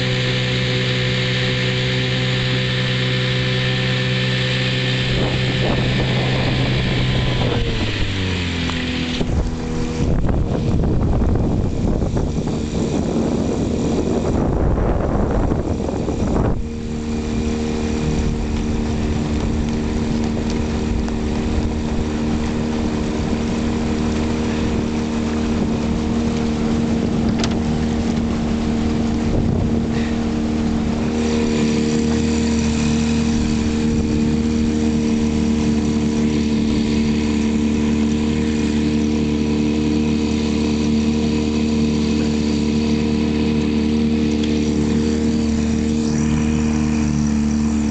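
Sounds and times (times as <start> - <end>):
outboard motor running: 0.0 - 47.9
rushing water: 0.0 - 47.9
wind: 0.0 - 47.9.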